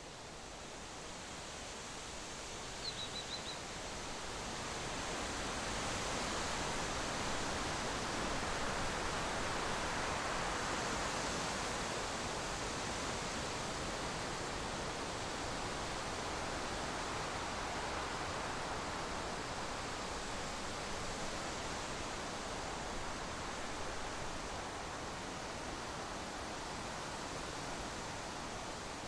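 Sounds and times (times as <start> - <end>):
bird chirping: 2.8 - 3.6.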